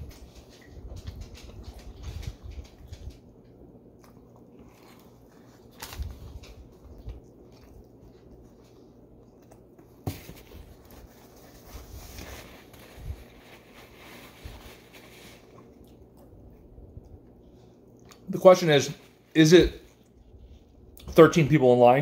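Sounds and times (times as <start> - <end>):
person chewing food: 3.5 - 10.0, 15.4 - 18.3
paper napkin rustling: 10.1 - 15.8.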